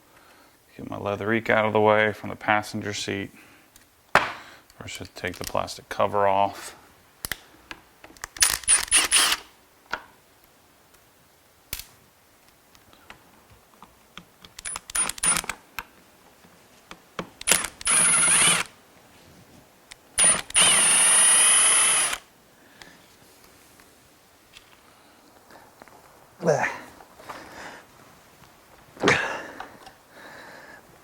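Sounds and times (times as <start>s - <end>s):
power tool motor whine: 8.7s - 9.5s, 17.4s - 18.7s, 20.2s - 22.2s
metallic clicks and rattles: 14.4s - 15.6s.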